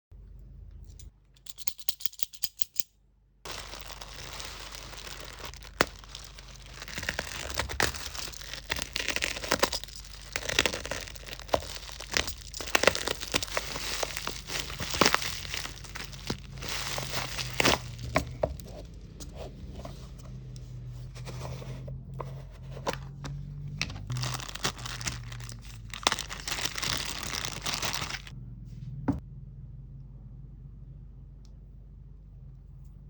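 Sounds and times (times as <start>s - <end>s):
plastic packaging crinkling: 3.5s - 19.2s, 23.8s - 28.4s.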